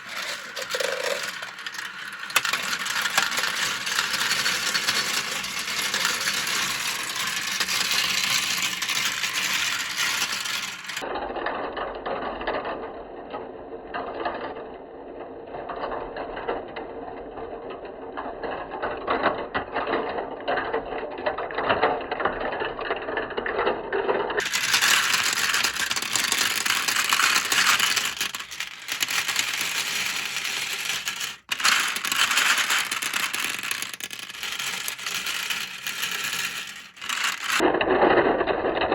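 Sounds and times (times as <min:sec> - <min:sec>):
marbles clattering down plastic run: 0:00.0 - 0:11.0, 0:24.4 - 0:38.8.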